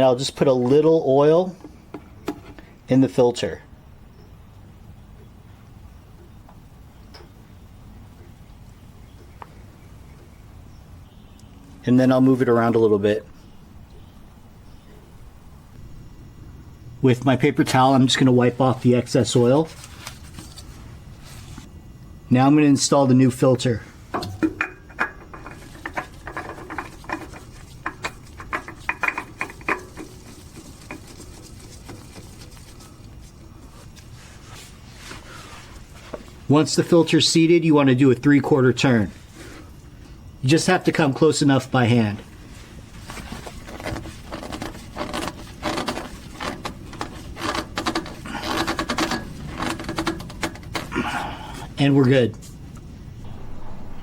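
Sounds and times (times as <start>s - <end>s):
oil filter clicks and scrapes: 24.2s - 34.1s, 43.0s - 50.9s.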